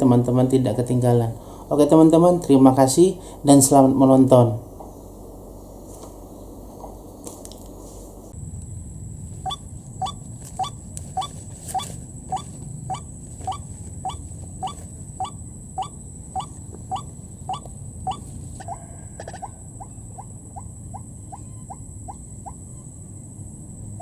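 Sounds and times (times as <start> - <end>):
high-pitched whine: 0.0 - 24.0
waterhen calling: 9.4 - 22.9.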